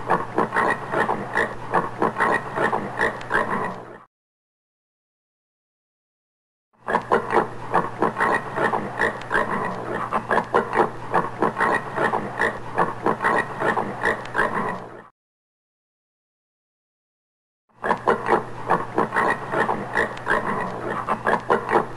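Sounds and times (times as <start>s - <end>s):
warthog grunting: 0.0s - 4.1s, 17.8s - 21.9s.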